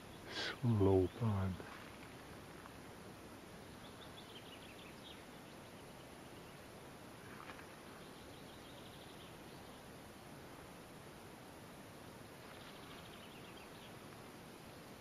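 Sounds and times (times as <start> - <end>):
birds chirping and trilling: 0.0 - 1.6, 3.5 - 9.9, 12.4 - 14.1
outdoor hiss: 0.0 - 15.0.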